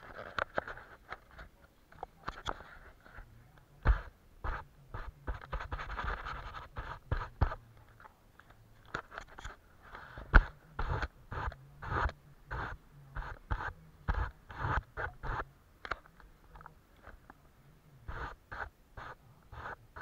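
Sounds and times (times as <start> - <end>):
brush scratching on paper: 2.6 - 7.6, 9.2 - 15.4, 18.0 - 20.0.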